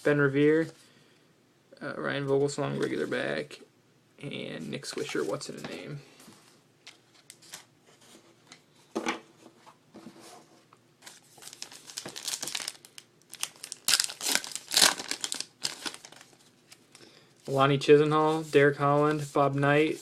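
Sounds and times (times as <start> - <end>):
wrapper tearing and crinkling: 11.1 - 16.8.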